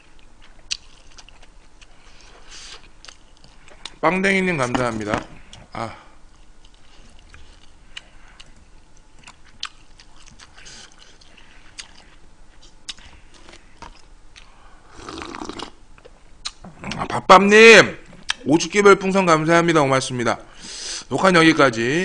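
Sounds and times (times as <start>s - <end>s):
man chewing food: 0.0s - 4.0s, 5.4s - 17.2s.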